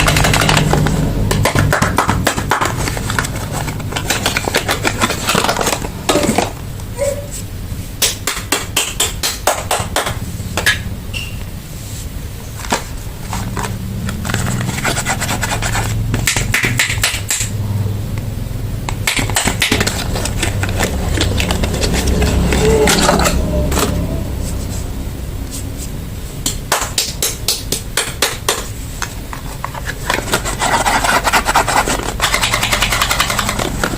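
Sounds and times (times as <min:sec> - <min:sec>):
steady low hum: 0:00.0 - 0:33.9
packaging crinkling: 0:02.5 - 0:06.6, 0:12.6 - 0:16.0, 0:19.4 - 0:22.7.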